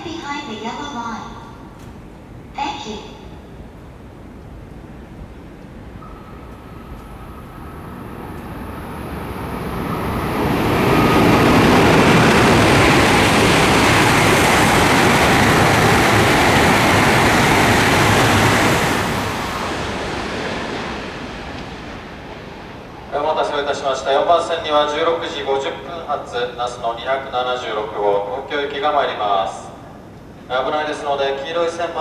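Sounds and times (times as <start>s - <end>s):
high-speed train passing: 0.0s - 32.0s.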